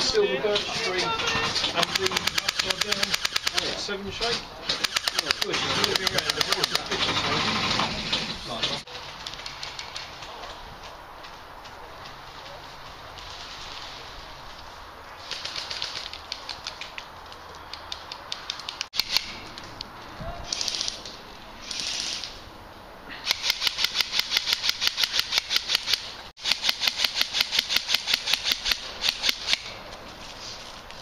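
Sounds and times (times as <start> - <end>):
airsoft guns firing: 1.7 - 3.8, 4.8 - 7.8, 23.3 - 29.7.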